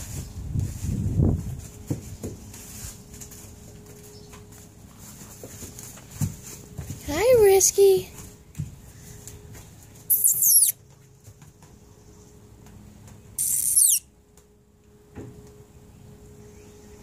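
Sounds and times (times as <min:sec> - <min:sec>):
bird calling high-pitched: 0:10.1 - 0:10.8, 0:13.4 - 0:14.1.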